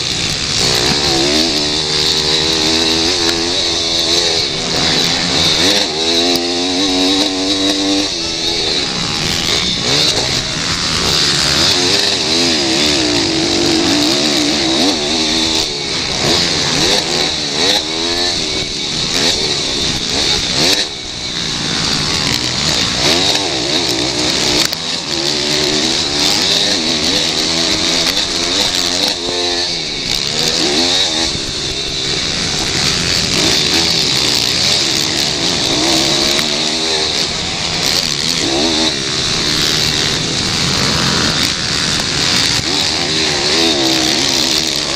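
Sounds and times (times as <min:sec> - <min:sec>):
motorbike engines revving: 0:00.0 - 0:44.9.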